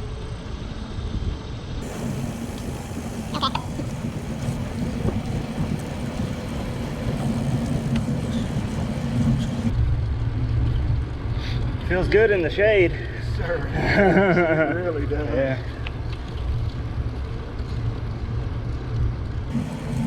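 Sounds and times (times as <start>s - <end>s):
faint steady hum: 1.8s - 9.7s, 19.5s - 20.0s
wind buffeting microphone: 1.8s - 9.7s, 19.5s - 20.0s.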